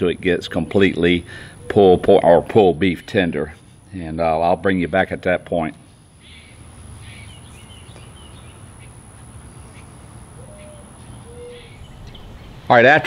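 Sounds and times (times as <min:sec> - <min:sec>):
faint bird chirps: 0:06.2 - 0:12.7.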